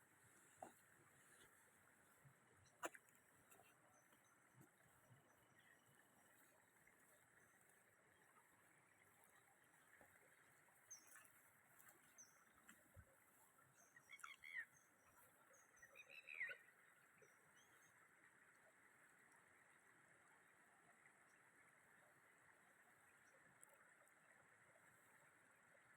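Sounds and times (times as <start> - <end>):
bird calls: 15.8 - 16.7.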